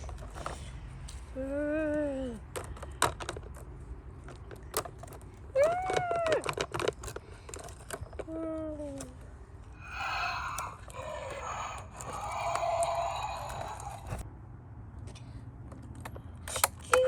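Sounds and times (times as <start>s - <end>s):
plastic toy pieces clattering: 2.2s - 14.2s.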